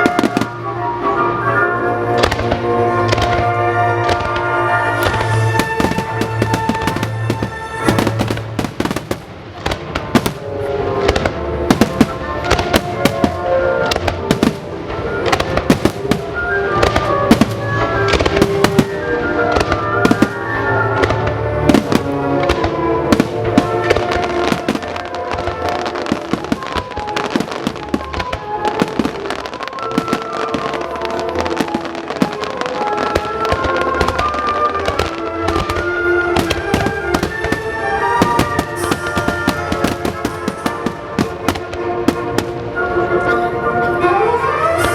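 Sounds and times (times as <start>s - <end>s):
fireworks bangs and crackles: 0.0s - 44.9s
music with held notes: 0.0s - 44.9s.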